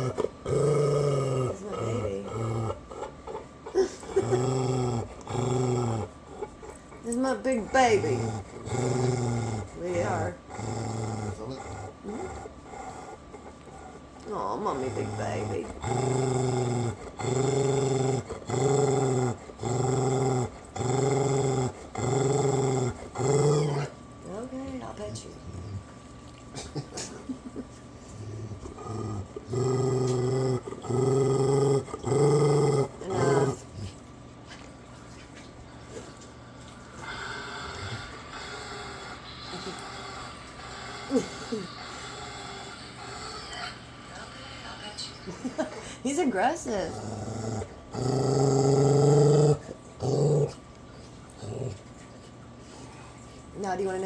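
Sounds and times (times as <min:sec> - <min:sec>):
dog growling low: 0:00.0 - 0:24.4, 0:28.1 - 0:34.0, 0:37.0 - 0:40.3, 0:46.7 - 0:50.6, 0:51.3 - 0:51.8.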